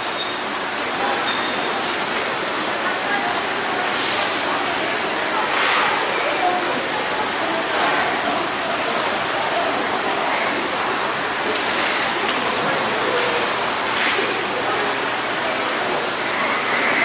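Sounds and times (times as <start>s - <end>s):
faint voices: 0.0s - 17.0s
steady rushing noise: 13.5s - 17.0s.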